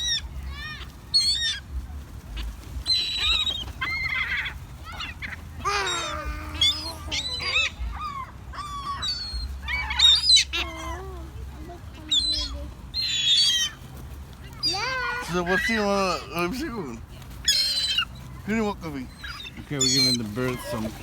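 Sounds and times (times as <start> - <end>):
gulls calling: 0.0 - 21.0.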